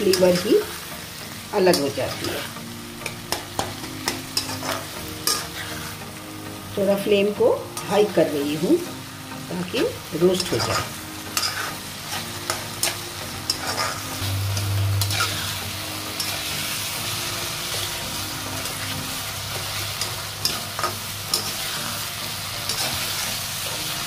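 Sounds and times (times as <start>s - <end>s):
food sizzling in a pan: 0.0s - 24.0s
steel spoon scraping pan: 1.7s - 6.0s, 10.3s - 16.6s, 18.6s - 22.0s.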